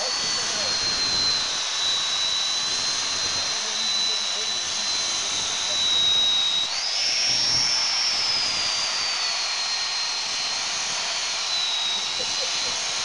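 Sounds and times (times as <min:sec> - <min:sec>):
abrasive belt hissing on metal: 0:00.0 - 0:13.0
belt grinder motor whine: 0:00.0 - 0:13.0.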